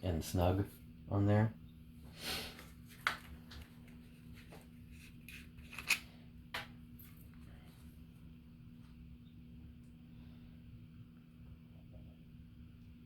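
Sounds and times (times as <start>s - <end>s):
faint steady hum: 0.0s - 13.0s
small parts clicking and tapping: 5.3s - 6.7s.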